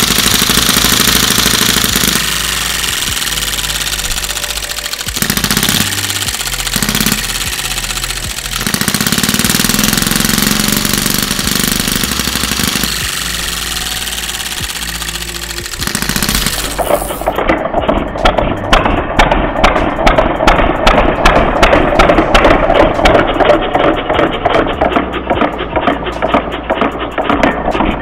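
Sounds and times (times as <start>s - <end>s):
model engine running fast: 0.0s - 17.4s.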